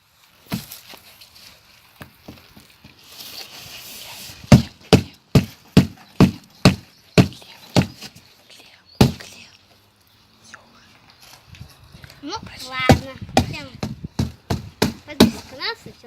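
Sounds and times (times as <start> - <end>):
cardboard rustling: 0.1 - 6.1.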